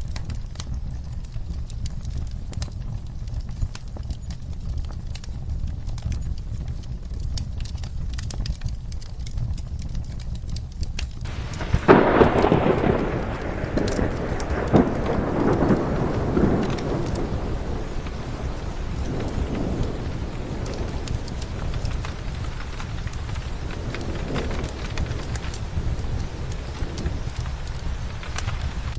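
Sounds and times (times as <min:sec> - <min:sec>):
rain: 0:00.0 - 0:28.9
wood fire crackling: 0:00.0 - 0:28.9
thunderclap rumbling: 0:11.2 - 0:28.9.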